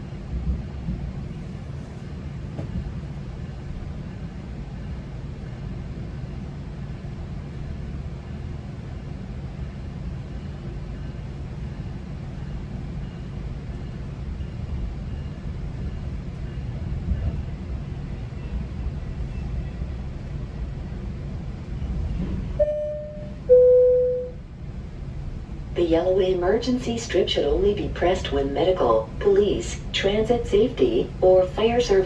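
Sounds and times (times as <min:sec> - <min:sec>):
wheels rumbling on rail: 0:00.0 - 0:32.0
faint steady hum: 0:22.6 - 0:30.1.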